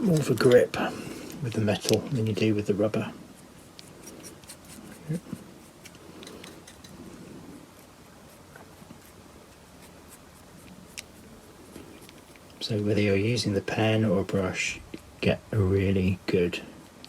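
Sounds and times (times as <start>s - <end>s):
paint brush scratching and dabbing: 2.2s - 12.6s.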